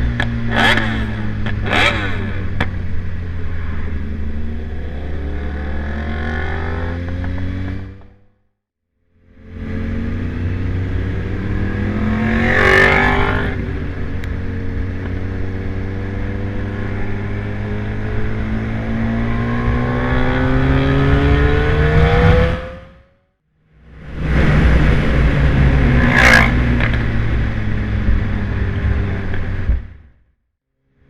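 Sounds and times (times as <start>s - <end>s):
motorcycle engine passing by: 0.4s - 8.3s, 9.4s - 23.2s.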